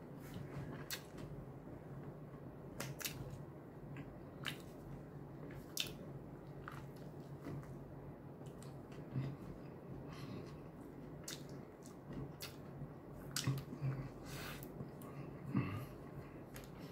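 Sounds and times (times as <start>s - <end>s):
faint steady hum: 0.0s - 16.9s
person chewing food: 0.2s - 1.2s, 2.8s - 7.8s, 8.4s - 16.9s.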